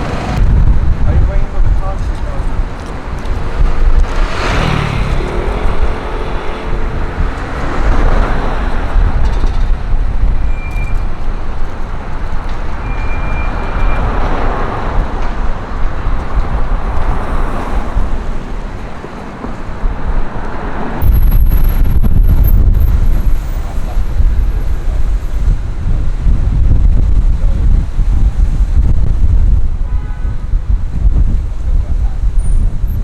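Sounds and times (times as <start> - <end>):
loud low rumble: 0.0 - 10.6, 21.0 - 29.9
vehicles driving past: 0.0 - 33.0.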